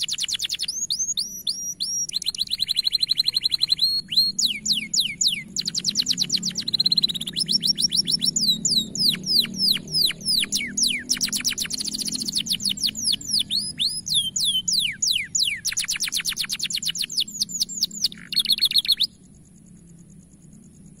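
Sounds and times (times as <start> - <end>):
canary singing: 0.0 - 19.2.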